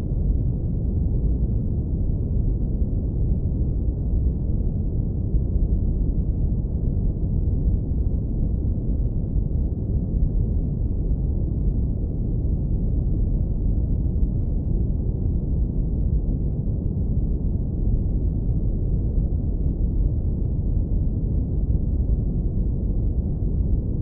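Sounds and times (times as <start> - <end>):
deep brown noise rumble: 0.0 - 24.0.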